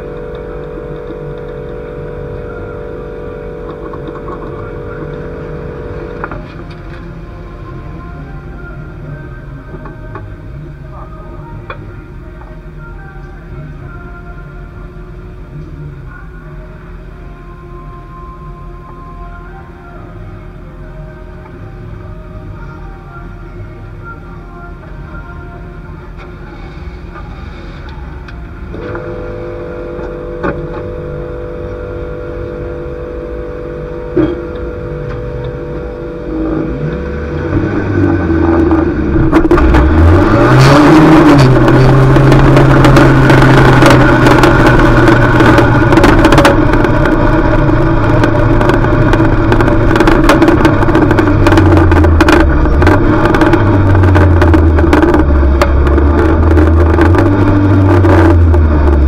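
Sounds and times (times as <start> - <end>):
race car engine revving: 0.0 - 11.0, 26.2 - 59.0.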